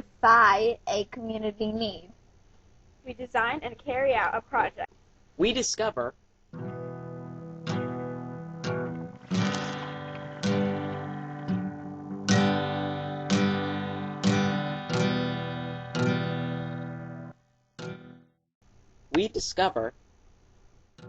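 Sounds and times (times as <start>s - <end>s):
acoustic guitar strummed chords: 6.5s - 18.3s.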